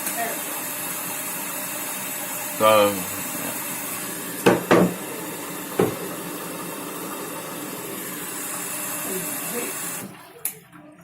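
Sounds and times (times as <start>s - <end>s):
washing machine hiss: 0.0s - 10.2s
washing machine knocks: 4.4s - 6.2s.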